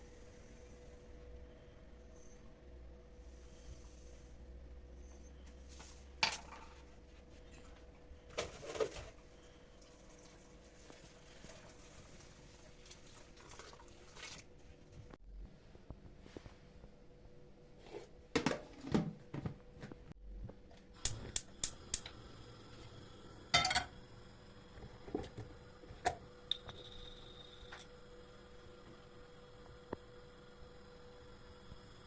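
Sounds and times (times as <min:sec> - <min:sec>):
faint steady hum: 0:00.0 - 0:32.0
dishes and utensils clinking: 0:23.6 - 0:23.9.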